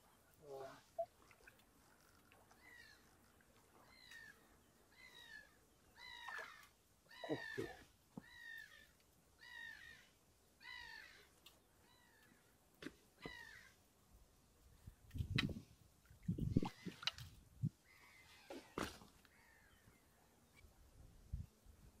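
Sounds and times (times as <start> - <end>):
bird calling: 0.4 - 12.5, 13.2 - 13.8.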